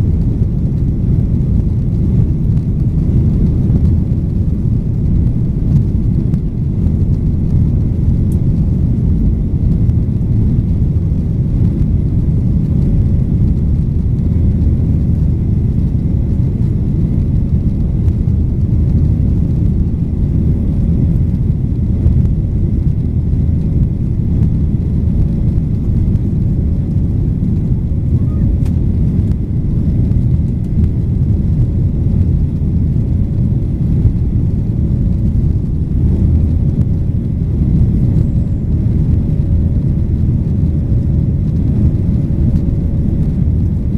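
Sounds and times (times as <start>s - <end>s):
faint steady hum: 0.0s - 43.9s
jet engines droning in cabin: 0.0s - 43.9s.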